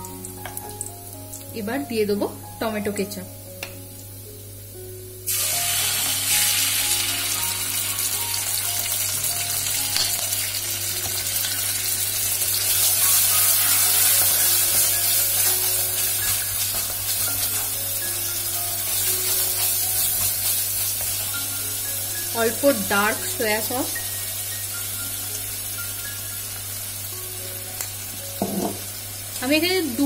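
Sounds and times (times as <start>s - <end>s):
garlic sizzling in hot oil: 0.0s - 30.0s.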